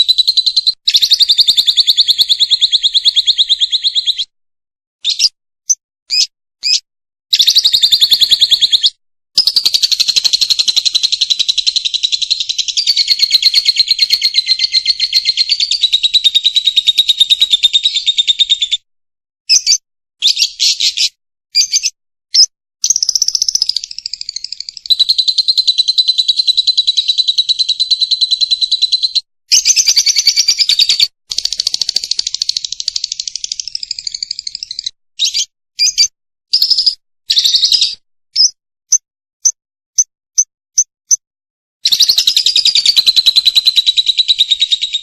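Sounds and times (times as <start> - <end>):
bird singing in high trills: 0.0 - 4.3, 5.0 - 18.8, 19.5 - 38.6, 41.8 - 45.0.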